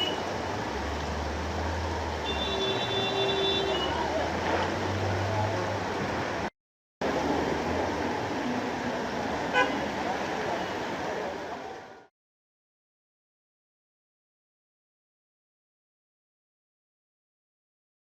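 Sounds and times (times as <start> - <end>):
heavy rain: 0.0 - 12.1
tyres on wet road: 0.0 - 12.1.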